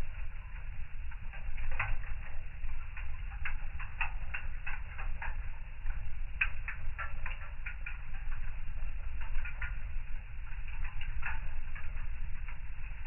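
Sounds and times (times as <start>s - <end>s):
fire crackling with sharp pops: 0.0s - 13.0s
low rumble of fire: 0.0s - 13.0s.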